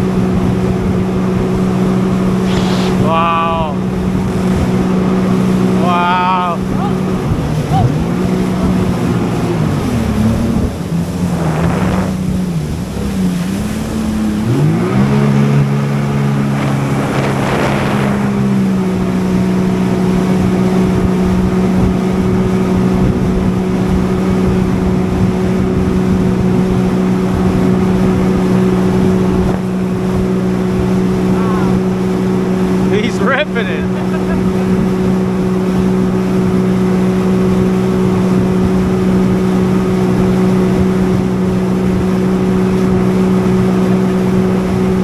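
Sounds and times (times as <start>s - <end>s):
jet ski engine running: 0.0s - 45.0s
brief rushes of noise: 2.4s - 3.2s.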